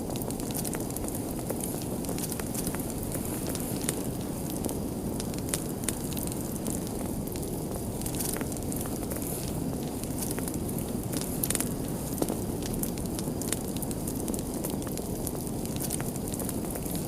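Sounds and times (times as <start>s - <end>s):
fire popping and snapping: 0.0s - 17.0s
rush of flames: 0.0s - 17.0s.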